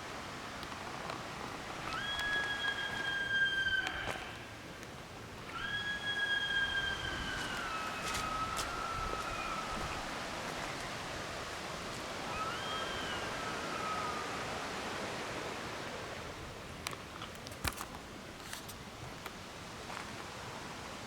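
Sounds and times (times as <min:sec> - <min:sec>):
animal call: 0:01.8 - 0:04.6, 0:05.4 - 0:10.8, 0:12.1 - 0:14.6.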